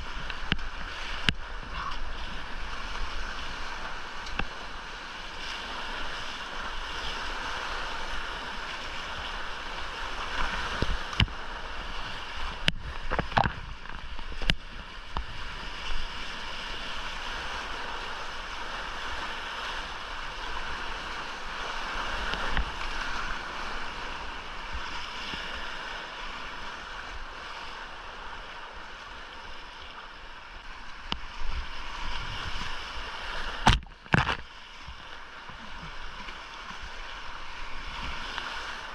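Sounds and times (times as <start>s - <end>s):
rushing whitewater roar: 0.0s - 38.9s
sharp knocks and splashes: 12.6s - 14.6s, 33.4s - 35.0s.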